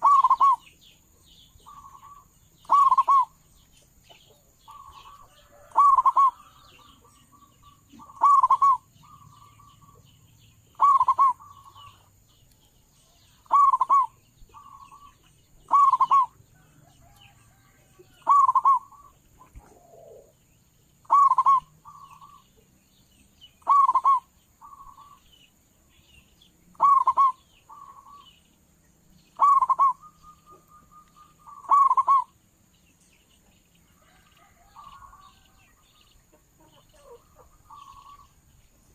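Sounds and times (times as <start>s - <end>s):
dove cooing: 0.0s - 0.6s, 1.6s - 3.4s, 4.7s - 10.0s, 10.7s - 12.1s, 13.4s - 20.4s, 21.0s - 22.5s, 23.6s - 25.2s, 26.7s - 28.3s, 29.4s - 32.4s, 36.6s - 38.4s
faint small bird chirps: 0.0s - 20.4s, 21.0s - 38.9s.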